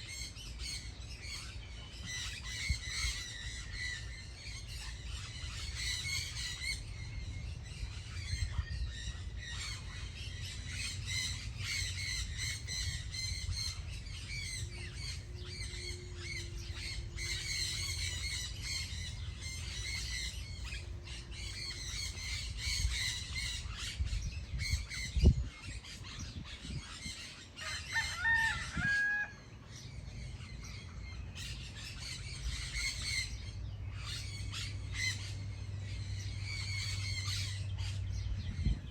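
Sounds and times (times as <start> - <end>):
steady low rumble: 0.0 - 27.5, 29.4 - 38.9
small birds chirping: 0.0 - 28.9, 29.6 - 38.9
rooster crowing: 27.6 - 29.6.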